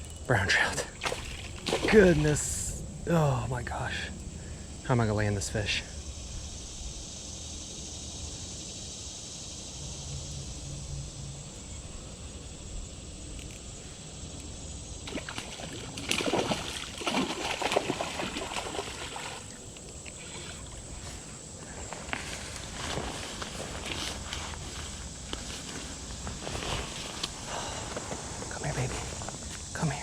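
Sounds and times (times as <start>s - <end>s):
creek flowing: 0.6s - 4.0s, 15.0s - 21.8s
fish splashing in water: 1.0s - 2.5s, 15.0s - 20.9s.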